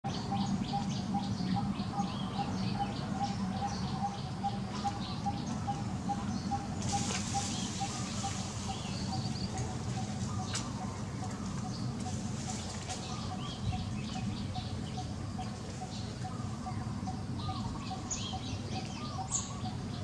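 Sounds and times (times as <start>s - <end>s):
birds chirping: 0.0s - 20.0s
low steady hum: 0.1s - 20.0s.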